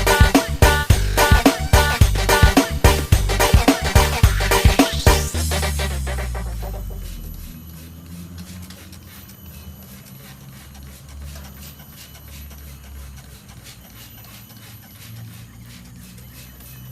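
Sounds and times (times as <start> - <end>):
low hum: 0.0 - 9.7.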